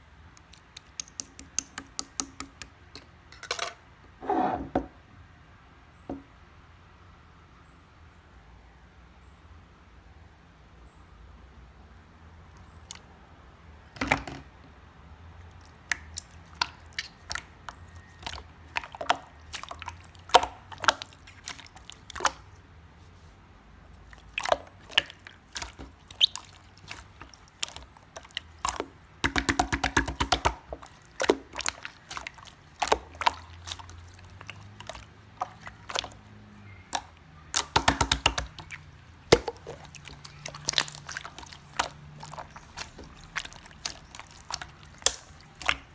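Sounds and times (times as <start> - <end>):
slime squished by hand: 0.4 - 2.7, 15.5 - 22.6, 23.9 - 45.9.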